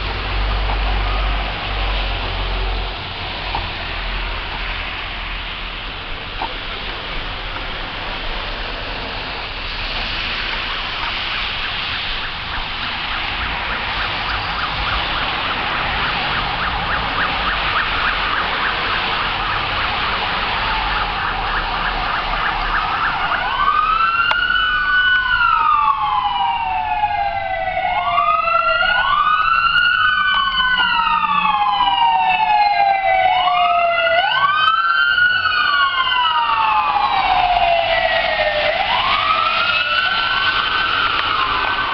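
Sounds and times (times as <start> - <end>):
siren wail: 0.0 - 5.0, 9.6 - 41.9
siren yelp: 10.4 - 41.9.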